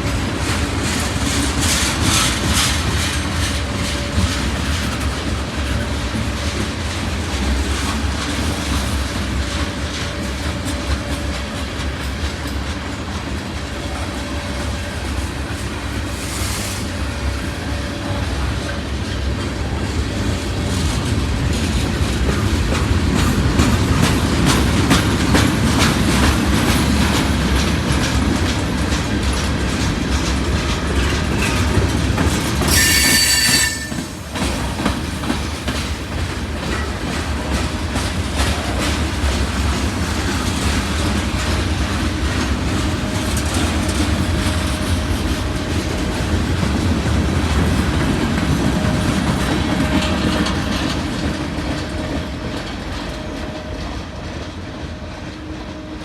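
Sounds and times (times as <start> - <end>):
train rumble: 0.0 - 56.0
train wheels clicking on rails: 0.0 - 56.0
wheel squeal: 32.7 - 34.2.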